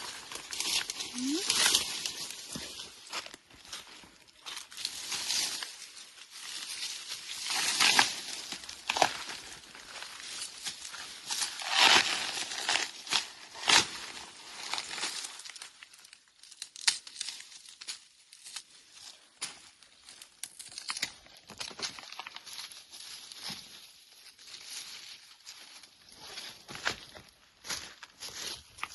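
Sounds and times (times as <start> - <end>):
crackling and rustling: 0.0 - 18.7.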